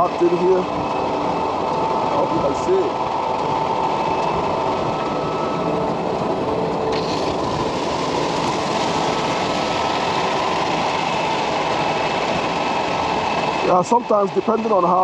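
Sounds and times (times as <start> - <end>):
concrete mixer truck drone: 0.0 - 15.0
water pouring into drum: 6.9 - 9.7.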